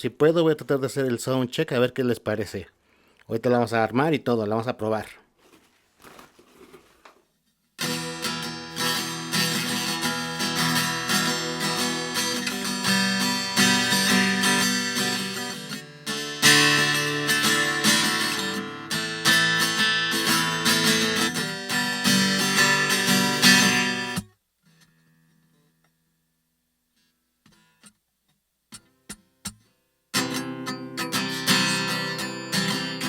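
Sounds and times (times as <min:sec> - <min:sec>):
acoustic guitar strummed chords: 0:07.8 - 0:24.3, 0:28.7 - 0:33.0.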